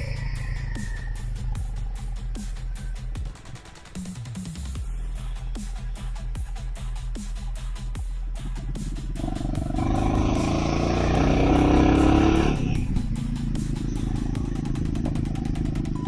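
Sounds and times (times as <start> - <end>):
motorcycle engine accelerating: 9.1 - 16.0.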